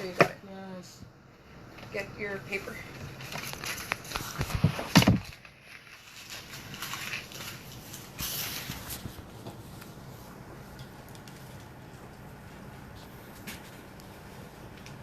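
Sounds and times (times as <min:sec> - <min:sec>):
paper rustling: 0:02.6 - 0:12.0.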